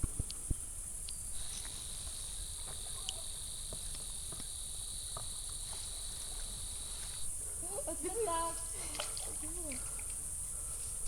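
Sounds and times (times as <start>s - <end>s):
faint ticks: 0.0s - 7.3s
high shrill insect chorus: 0.4s - 11.0s
nearer insect low trill: 0.5s - 10.5s.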